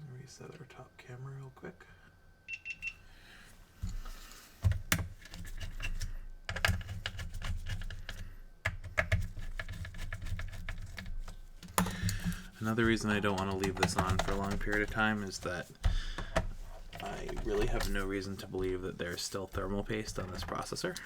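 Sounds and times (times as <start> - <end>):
typing on keyboard: 5.9 - 16.4.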